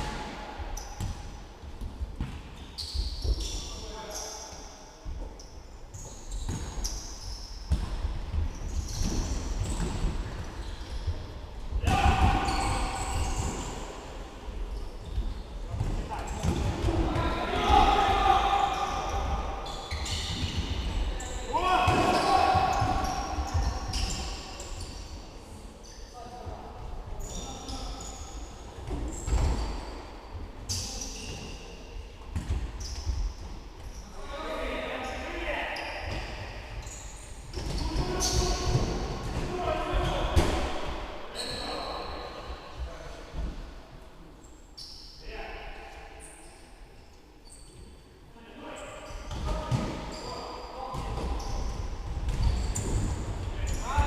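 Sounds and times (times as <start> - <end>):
shoe squeaks: 2.6 - 7.9, 8.5 - 11.4, 12.3 - 14.0, 18.7 - 26.4, 27.2 - 30.0, 30.7 - 31.8, 32.8 - 34.2, 35.0 - 40.4, 41.3 - 42.7, 44.8 - 45.2, 47.4 - 54.0
players calling out: 21.2 - 24.1.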